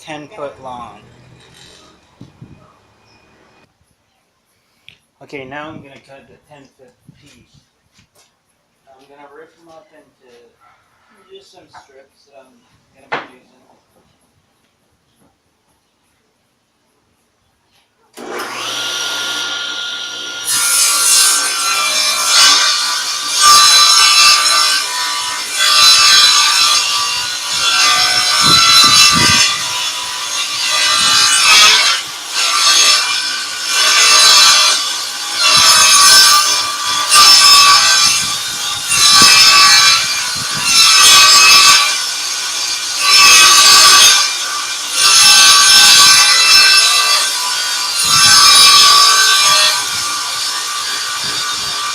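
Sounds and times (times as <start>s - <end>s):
table saw cutting board: 0.1s - 3.7s, 18.2s - 51.9s.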